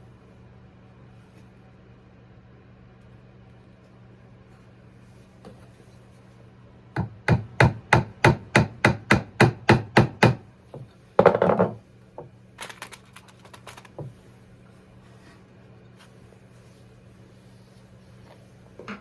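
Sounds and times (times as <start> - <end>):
hammer tapping nail into wood: 7.0 - 10.4.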